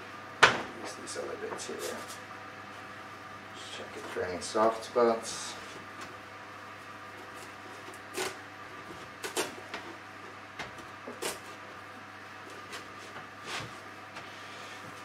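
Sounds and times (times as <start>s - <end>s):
knife cutting pumpkin rind: 7.2s - 8.4s, 9.1s - 9.7s, 11.0s - 11.5s.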